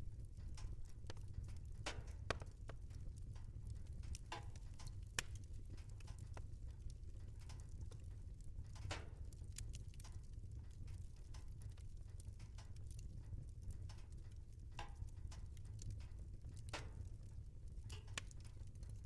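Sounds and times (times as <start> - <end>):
fire crackling and popping: 0.0 - 19.0
fire low rumble: 0.0 - 19.0.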